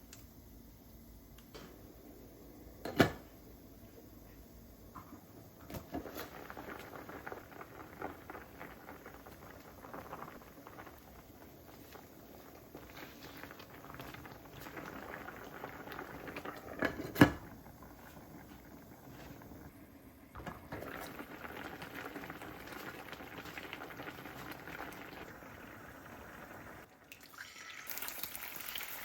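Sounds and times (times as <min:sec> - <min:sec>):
food crackling in a pan: 0:05.6 - 0:19.7, 0:20.4 - 0:29.0.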